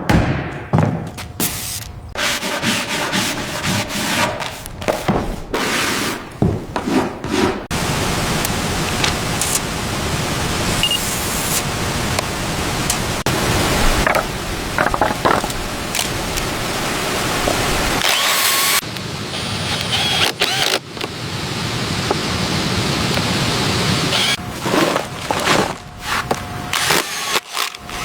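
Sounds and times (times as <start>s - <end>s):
rubbing or scraping strokes: 1.4s - 7.7s.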